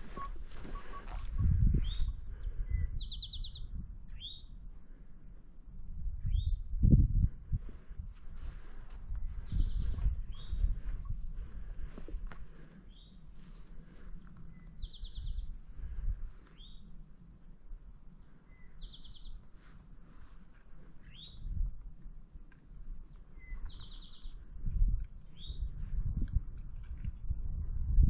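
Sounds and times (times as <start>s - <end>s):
songbird singing with buzzy trill: 0.0s - 4.6s, 6.1s - 7.0s, 9.2s - 11.2s, 12.9s - 13.2s, 14.2s - 15.6s, 16.5s - 17.0s, 18.1s - 19.5s, 21.0s - 21.7s, 23.1s - 25.8s.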